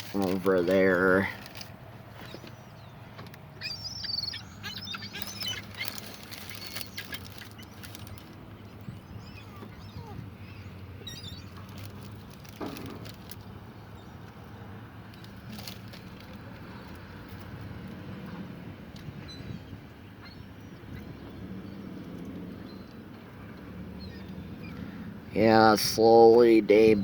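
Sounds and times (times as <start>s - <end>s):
seagulls squawking: 3.5s - 8.2s.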